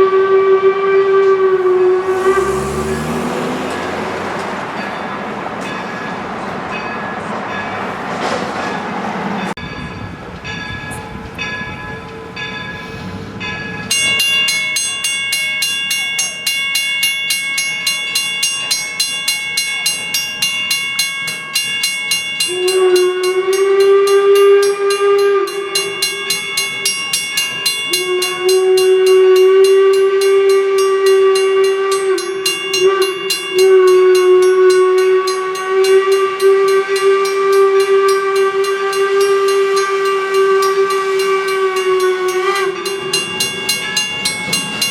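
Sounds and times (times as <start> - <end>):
steam whistle blasts: 0.0 - 4.8, 22.4 - 27.0, 27.9 - 43.6
steam locomotive passing: 0.0 - 16.4, 17.0 - 44.9
locomotive bell ringing: 1.2 - 44.9.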